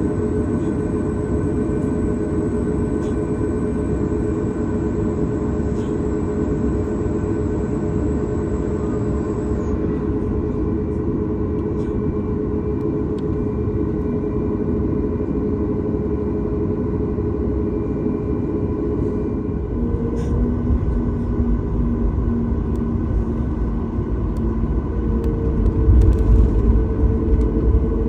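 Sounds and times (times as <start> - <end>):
faint high whine: 0.0 - 10.2
jet engines idling: 0.0 - 28.0.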